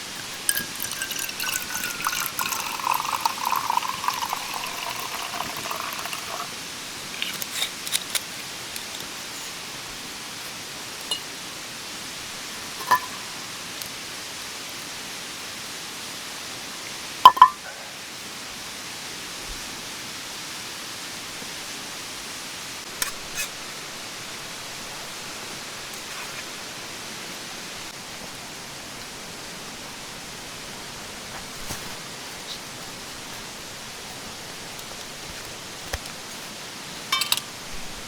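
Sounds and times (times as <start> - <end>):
stream water rushing: 0.0 - 7.4.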